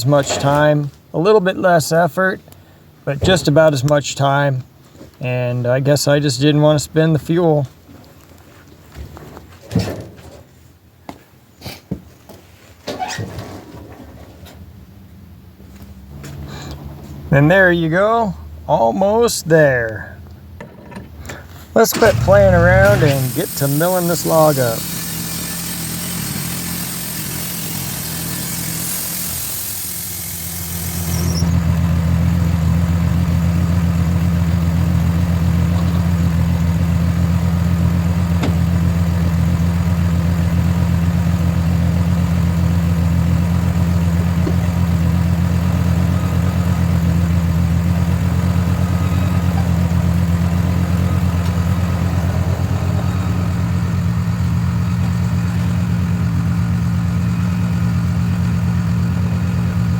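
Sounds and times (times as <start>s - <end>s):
sawmill engine running: 21.8s - 59.9s.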